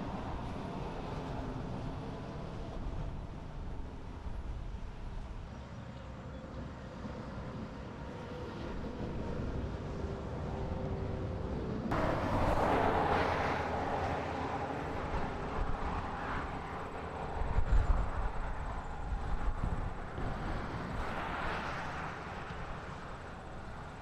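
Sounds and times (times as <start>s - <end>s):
heavy engines rumbling: 0.0s - 21.1s
rush of noise: 11.9s - 21.4s.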